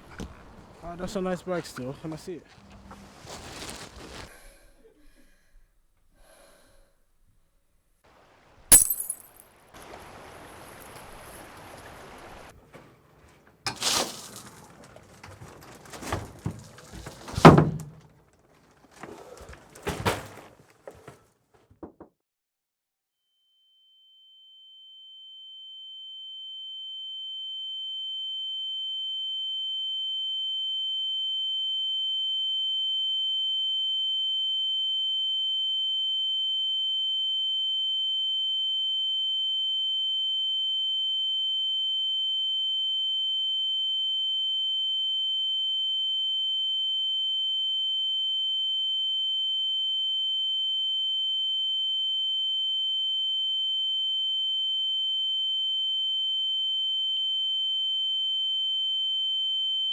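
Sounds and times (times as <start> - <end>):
high-pitched sine tone: 23.8 - 59.9.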